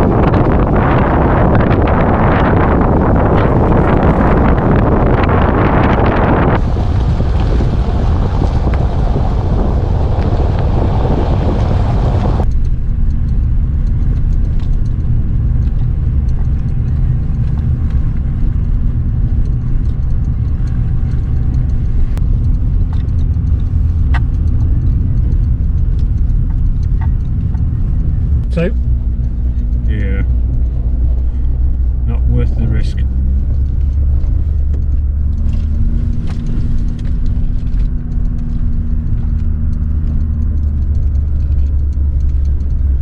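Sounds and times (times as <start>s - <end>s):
car engine and tyres rumbling: 0.0s - 43.0s
light clicks: 11.6s - 32.3s, 32.9s - 43.0s.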